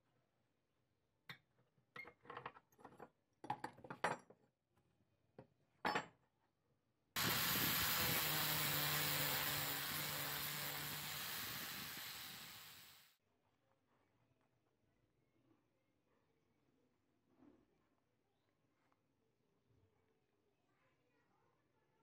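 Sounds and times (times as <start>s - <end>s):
angle grinder grinding steel: 7.2s - 13.0s.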